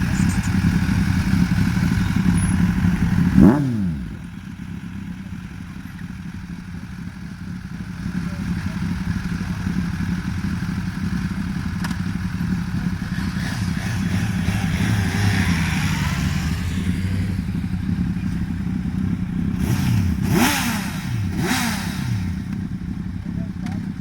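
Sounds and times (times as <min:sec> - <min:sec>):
motorcycle riding past: 0:00.0 - 0:04.6, 0:13.0 - 0:22.9
motorcycle engines idling and revving: 0:00.0 - 0:24.0.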